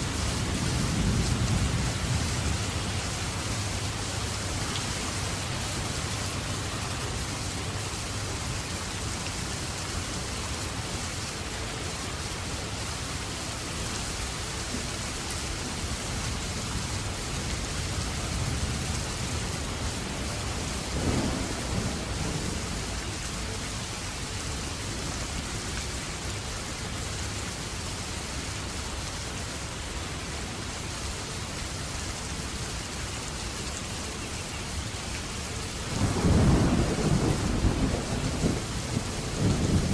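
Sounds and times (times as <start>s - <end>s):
steady rain: 0.0s - 39.9s
low rumble of thunder: 0.1s - 4.6s, 16.2s - 23.9s, 35.9s - 39.9s.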